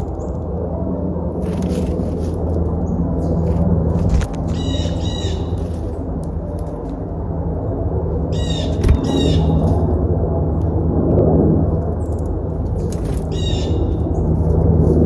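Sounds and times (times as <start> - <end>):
low rumble: 0.0 - 15.0
birds chattering calls: 2.7 - 6.0, 8.3 - 9.8, 12.7 - 14.5.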